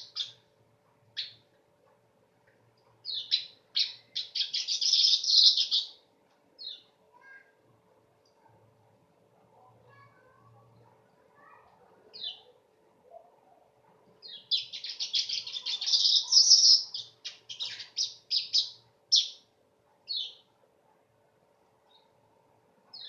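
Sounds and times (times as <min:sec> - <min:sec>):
weaver bird chirping and chattering: 0:00.0 - 0:00.4, 0:01.2 - 0:01.4, 0:03.0 - 0:06.0, 0:12.2 - 0:12.5, 0:14.2 - 0:19.4.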